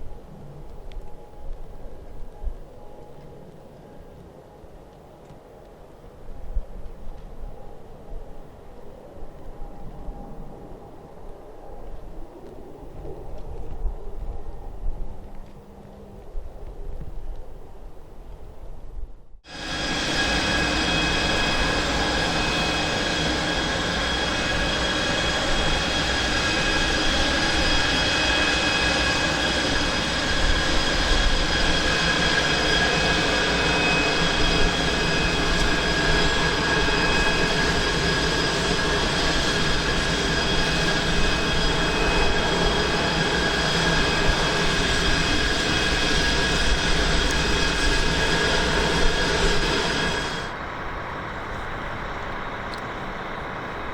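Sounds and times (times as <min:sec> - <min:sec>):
jet engines running: 0:19.4 - 0:53.9.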